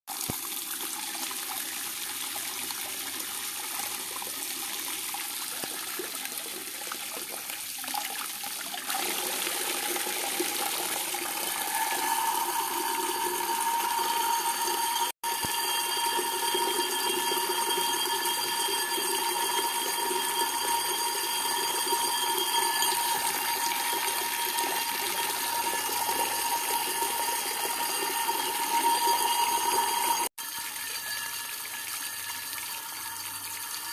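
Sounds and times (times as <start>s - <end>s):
tap water running: 0.1s - 33.9s
steady whistling tone: 11.2s - 30.3s.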